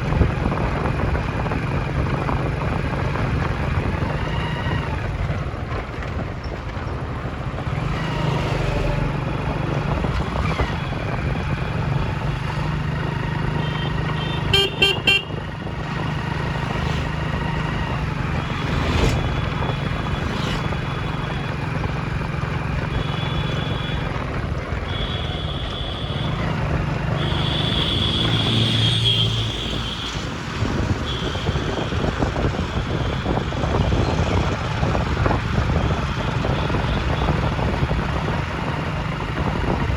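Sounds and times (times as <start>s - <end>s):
traffic engine and road drone: 0.0s - 39.9s
car horns honking: 13.6s - 15.5s, 22.8s - 24.2s, 24.8s - 32.1s.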